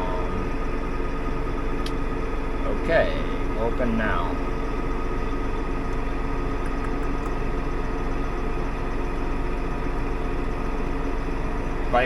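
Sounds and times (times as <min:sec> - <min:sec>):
tractor engine droning: 0:00.0 - 0:12.0.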